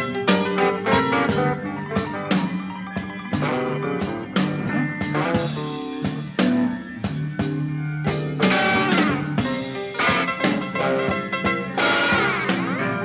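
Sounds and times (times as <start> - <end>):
bass guitar: 0.0 - 13.0
drum kit steady beat: 0.0 - 13.0
electric guitar notes: 3.0 - 7.0, 7.8 - 13.0.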